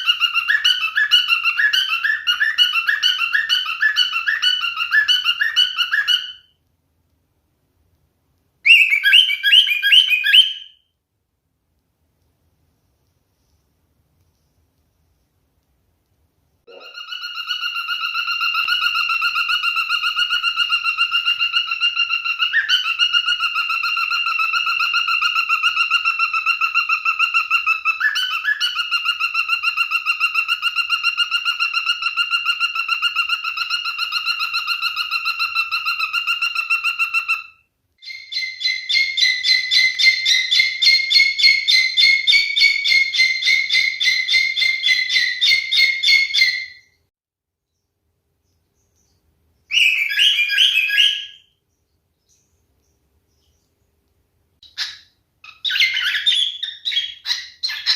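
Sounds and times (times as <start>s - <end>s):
trilled whistle: 8.7s - 10.8s.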